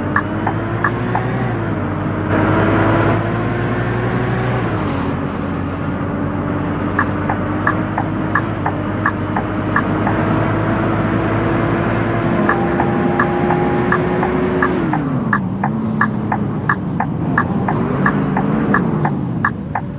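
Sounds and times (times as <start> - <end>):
regular ticking: 0.0 - 2.3, 5.9 - 10.7, 12.4 - 19.9
bus diesel engine pulling: 0.0 - 19.9.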